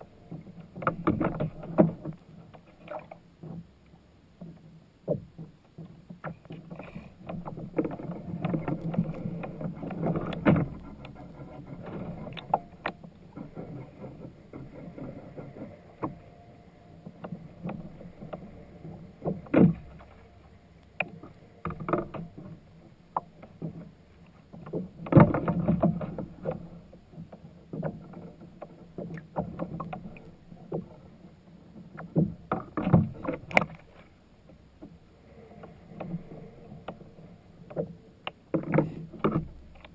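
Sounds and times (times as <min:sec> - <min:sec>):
kayak splashing: 0:00.0 - 0:39.9
knocks against hull: 0:19.2 - 0:20.0.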